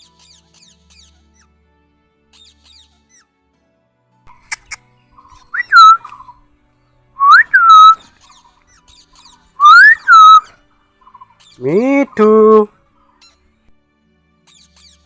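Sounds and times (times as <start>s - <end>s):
parrot whistling: 4.3s - 6.3s, 7.2s - 8.0s, 9.6s - 10.5s, 11.6s - 12.7s.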